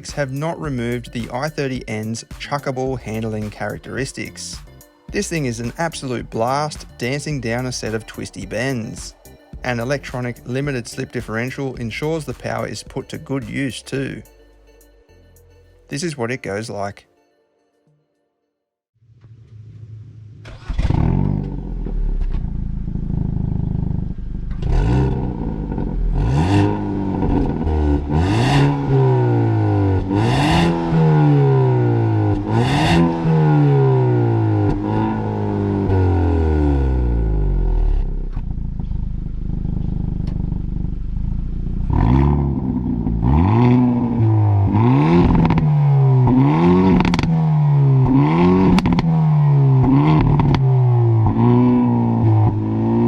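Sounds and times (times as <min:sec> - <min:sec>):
car engine revving through gears: 0:19.3 - 0:53.0
exhaust cracks on gear shifts: 0:37.9 - 0:44.0, 0:44.7 - 0:47.4, 0:48.0 - 0:49.2, 0:49.8 - 0:52.7.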